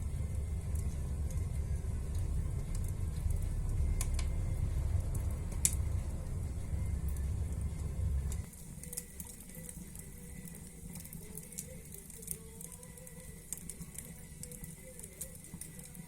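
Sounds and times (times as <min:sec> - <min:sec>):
low rumble: 0:00.0 - 0:08.5
wood fire crackling: 0:00.0 - 0:16.0.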